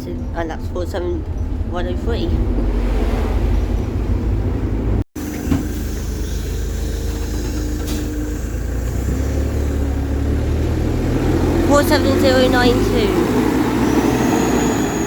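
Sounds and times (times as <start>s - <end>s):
bus engine running: 0.0s - 15.0s.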